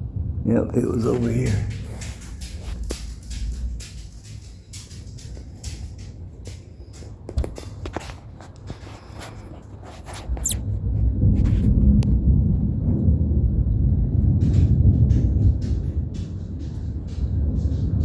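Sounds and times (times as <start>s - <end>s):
thunder rumbling: 0.0s - 7.8s, 10.6s - 18.0s
light clicks and taps: 1.0s - 10.6s.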